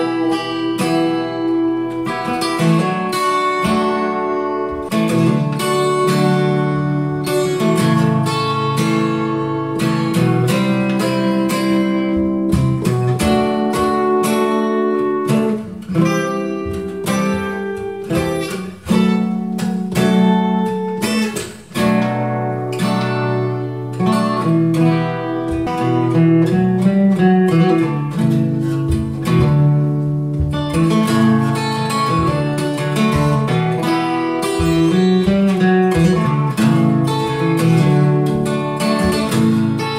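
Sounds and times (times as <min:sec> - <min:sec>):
acoustic guitar picking: 0:00.0 - 0:39.9
held bass notes: 0:22.4 - 0:39.9.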